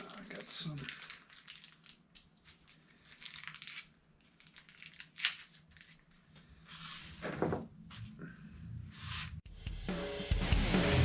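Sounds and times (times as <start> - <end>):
faint rustling and crinkling: 0.0 - 8.2.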